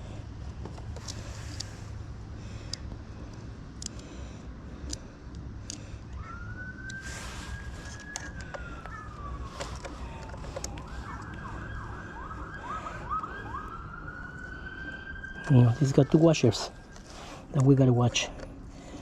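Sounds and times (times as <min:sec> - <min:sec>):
emergency vehicle siren: 0:05.6 - 0:18.6
light clicks and taps: 0:07.8 - 0:11.5.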